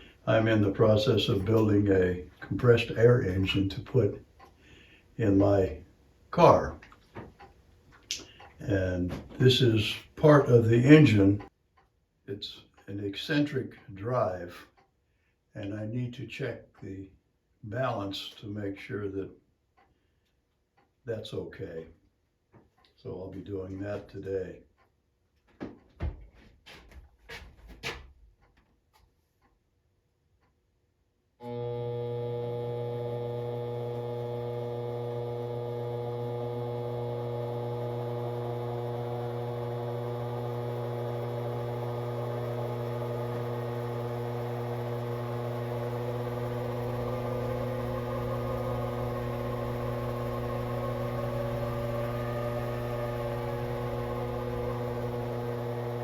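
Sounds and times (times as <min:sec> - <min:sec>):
motor humming: 0:31.4 - 0:56.0.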